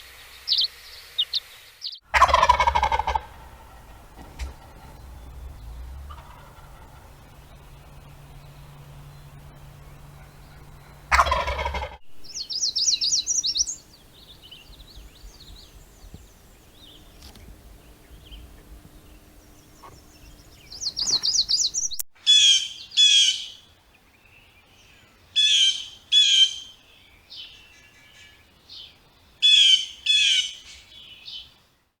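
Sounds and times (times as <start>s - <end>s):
rapid high bird trills: 0.4s - 23.6s
harsh bird call: 2.1s - 14.8s, 19.2s - 23.6s
faint bird chirps: 3.1s - 32.0s.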